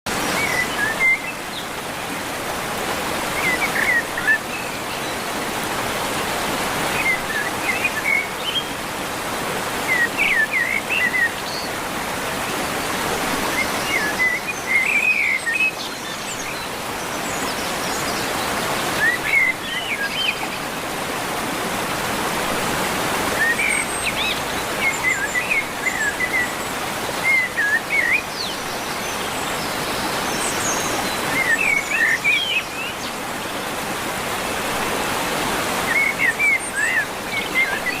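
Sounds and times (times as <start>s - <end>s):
birds chirping: 0.1s - 38.0s.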